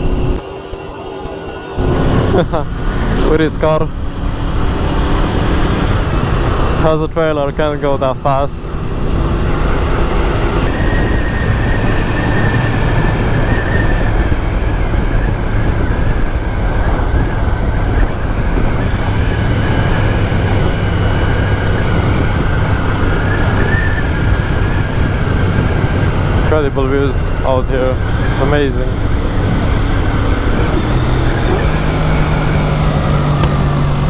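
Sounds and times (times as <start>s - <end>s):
wind rumble on microphone: 0.0s - 0.4s, 1.8s - 34.0s
motorcycle engine running: 0.0s - 0.8s, 1.4s - 34.0s
steady high whine: 0.0s - 34.0s.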